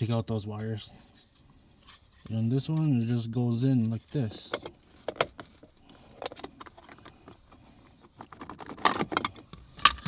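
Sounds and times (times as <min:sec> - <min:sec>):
clicking and rattling: 0:08.0 - 0:10.0.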